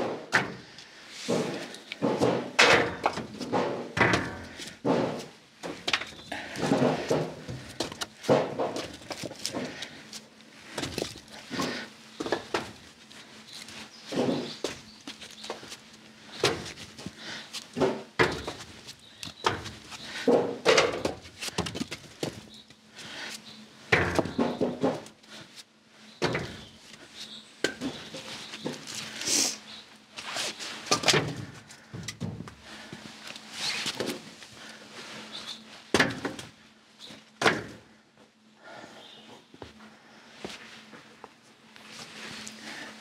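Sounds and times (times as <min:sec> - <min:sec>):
irregular knocks and thuds: 0:01.3 - 0:09.8, 0:17.8 - 0:18.8, 0:23.9 - 0:25.1, 0:26.2 - 0:26.7, 0:30.9 - 0:32.7.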